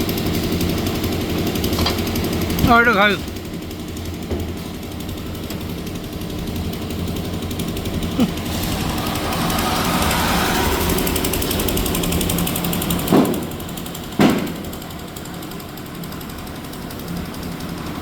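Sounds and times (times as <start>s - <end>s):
concrete mixer engine running: 0.0s - 18.0s
loud bangs: 8.4s - 14.9s.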